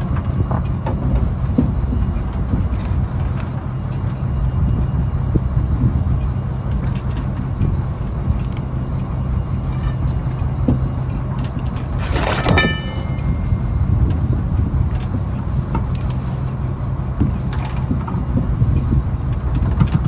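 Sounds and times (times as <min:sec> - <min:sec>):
diesel engine droning: 0:00.0 - 0:20.0
sharp metallic clang: 0:12.0 - 0:13.8.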